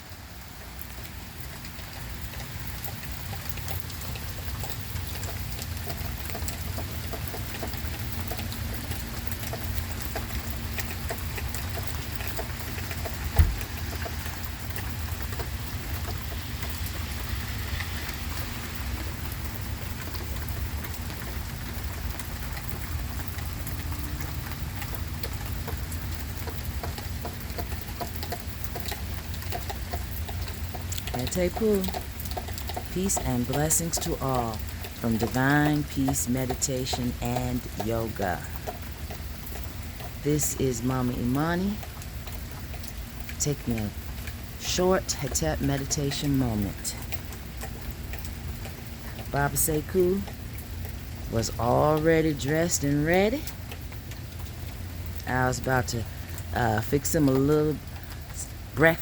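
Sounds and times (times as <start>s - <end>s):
rain patter: 0.0s - 59.0s
single thump: 13.4s - 13.6s.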